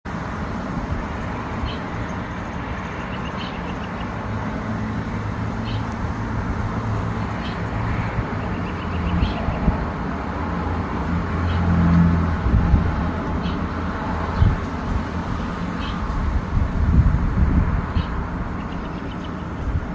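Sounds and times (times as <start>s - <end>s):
road traffic rumble: 0.0s - 19.9s.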